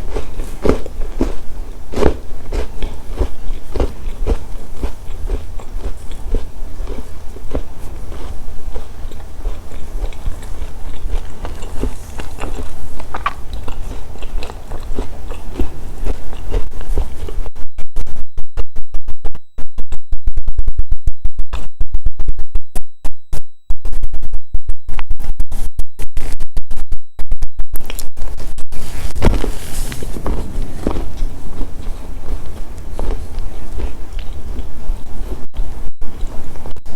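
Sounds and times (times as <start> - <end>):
chewing and crunching snacks: 0.0 - 17.5, 27.8 - 36.9
steady low hum: 0.0 - 36.9
loud clipped microphone crackles: 27.8 - 36.9.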